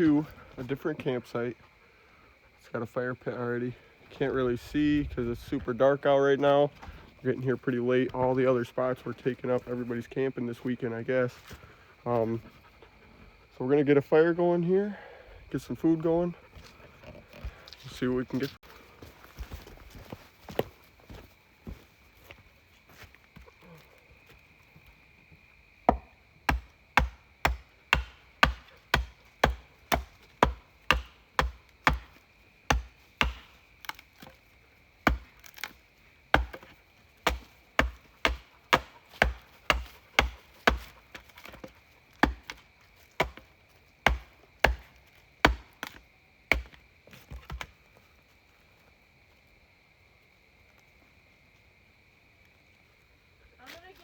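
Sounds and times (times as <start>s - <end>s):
axe chopping firewood: 25.9s - 34.4s, 35.0s - 42.6s, 43.2s - 47.7s.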